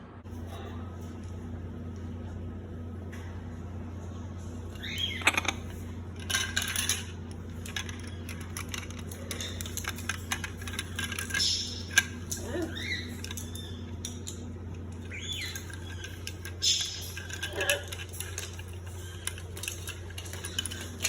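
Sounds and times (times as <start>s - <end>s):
steady low hum: 0.0s - 21.0s
plastic toys clattering: 4.7s - 21.0s
parrot chirp: 4.8s - 5.5s, 11.4s - 14.4s, 15.0s - 17.9s.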